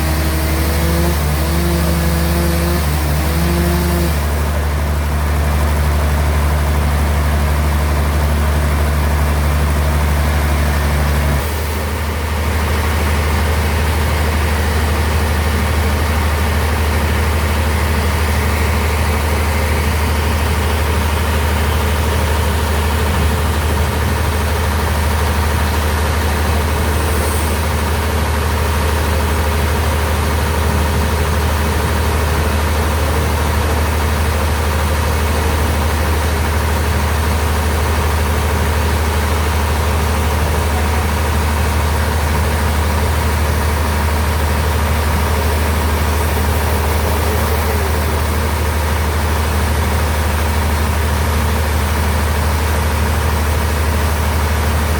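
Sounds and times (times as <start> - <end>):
bandsaw humming: 0.0 - 7.0, 9.5 - 29.6, 41.8 - 49.6.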